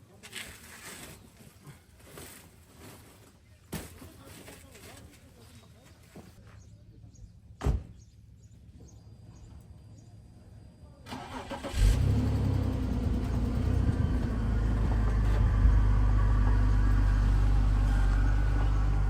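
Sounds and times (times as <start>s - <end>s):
thump: 7.6s - 8.0s
car engine starting and idling: 11.0s - 19.0s.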